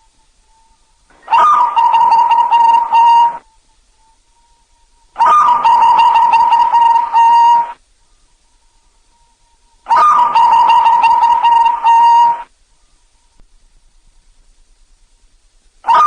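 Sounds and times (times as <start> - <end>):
dove cooing: 1.1 - 3.5, 5.2 - 7.8, 9.9 - 12.5.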